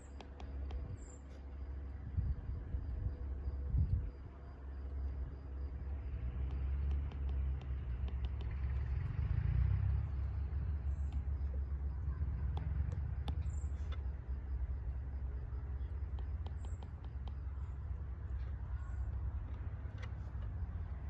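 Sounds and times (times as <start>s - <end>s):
low rumble: 0.8s - 6.5s.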